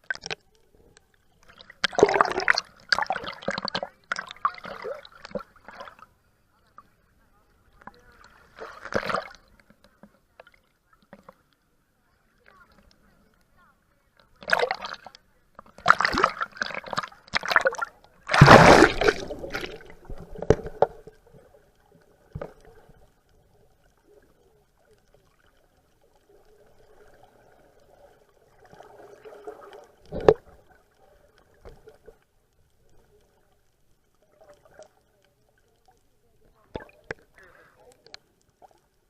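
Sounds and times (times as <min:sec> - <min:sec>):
water splashing around boat: 0:01.4 - 0:06.1, 0:07.7 - 0:11.5, 0:14.2 - 0:33.3.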